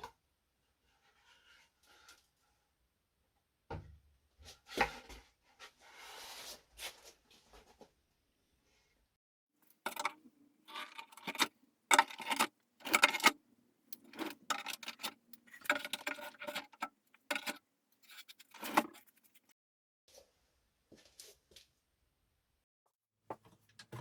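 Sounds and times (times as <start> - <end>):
small hard objects clattering: 9.7 - 19.4.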